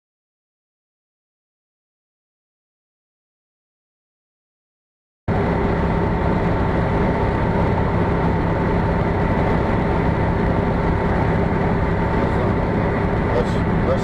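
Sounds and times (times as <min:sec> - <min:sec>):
high steady whine: 0:05.3 - 0:14.0
vehicle engine and road noise: 0:05.3 - 0:14.0.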